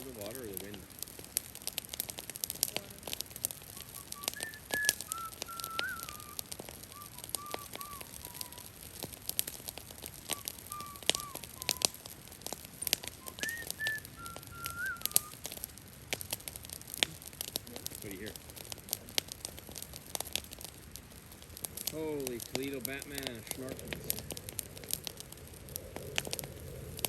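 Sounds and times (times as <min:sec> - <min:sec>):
brush fire crackling: 0:00.0 - 0:27.0
rain: 0:00.0 - 0:27.0
short whistled notes: 0:03.7 - 0:08.8, 0:10.3 - 0:12.0, 0:12.8 - 0:15.4.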